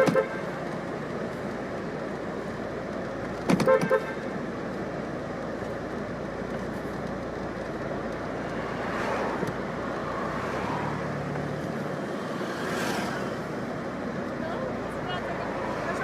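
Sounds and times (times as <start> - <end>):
street traffic noise: 0.0 - 16.0
vehicle passing by: 8.4 - 13.7, 14.5 - 16.0.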